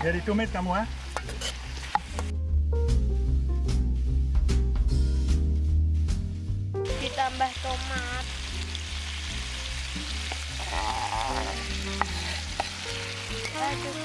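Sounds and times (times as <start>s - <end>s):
paste sizzling in a wok: 0.0s - 2.3s, 6.9s - 14.0s
metal spatula stirring: 1.1s - 2.3s, 10.0s - 14.0s.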